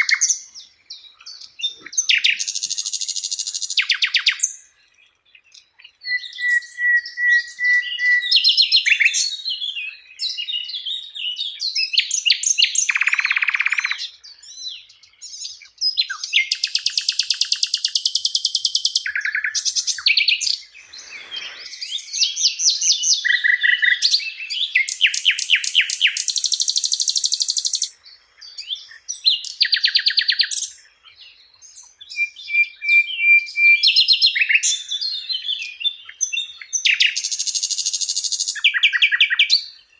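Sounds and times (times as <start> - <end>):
flycatcher singing: 0.0 - 39.9.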